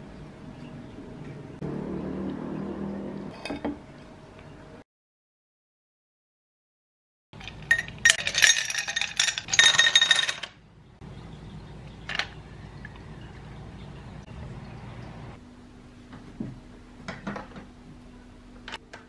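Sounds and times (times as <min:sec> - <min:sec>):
utensil clinking against dish: 0:07.4 - 0:10.6.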